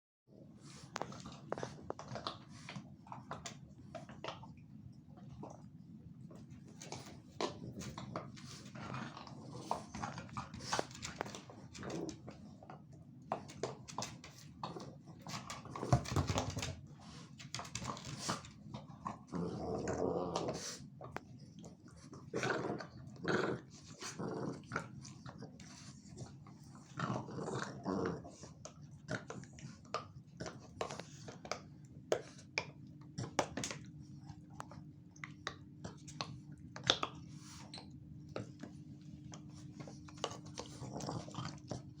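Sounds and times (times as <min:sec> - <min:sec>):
paw and claw taps: 0:13.3 - 0:18.6
dogs scuffling: 0:15.2 - 0:18.5.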